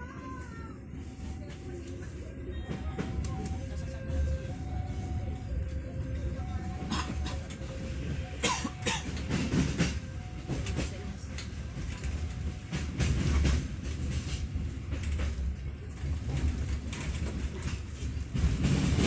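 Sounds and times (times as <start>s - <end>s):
train carriage rolling on track: 0.0s - 19.0s
wheels clacking and knocking: 5.6s - 19.0s.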